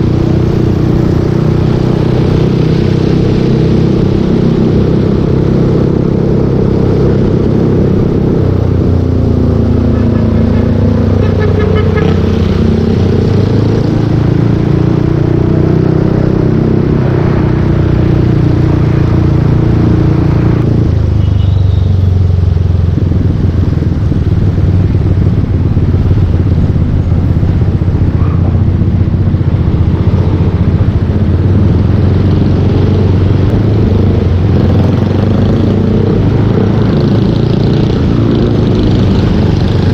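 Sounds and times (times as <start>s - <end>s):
scooter engine running: 7.2s - 15.5s.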